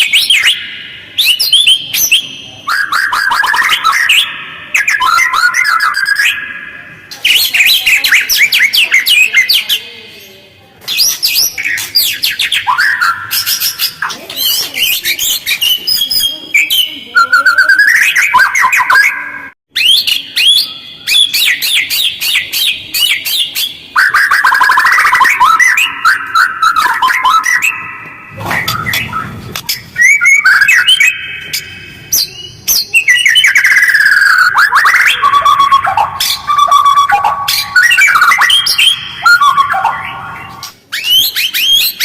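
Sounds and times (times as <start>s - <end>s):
bird song trills and whistles: 0.0s - 42.0s.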